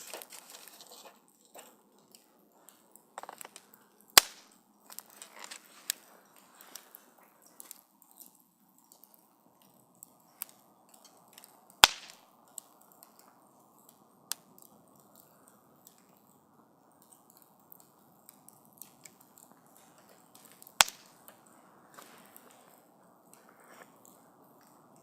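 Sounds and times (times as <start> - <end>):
campfire hissing and crackling: 0.0 - 25.0
loud sharp fire pops: 4.2 - 4.6, 11.8 - 12.3, 20.8 - 21.2.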